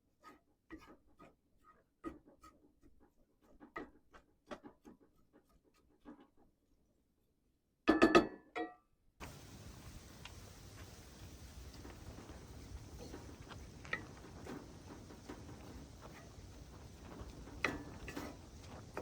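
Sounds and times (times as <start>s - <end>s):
steady hiss: 9.2s - 19.0s.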